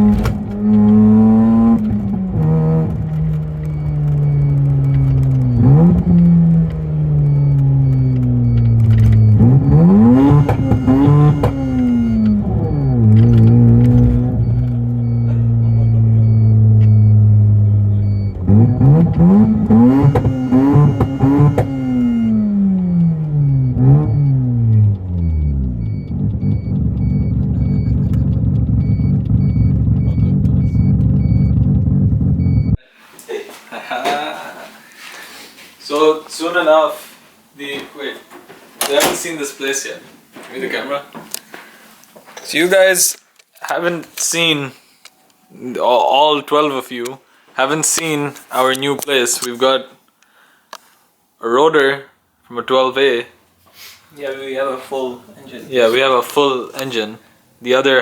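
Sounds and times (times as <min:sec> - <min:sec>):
rotary car engine revving: 0:00.0 - 0:32.8
faint repeating beep: 0:02.7 - 0:28.2, 0:28.8 - 0:31.6.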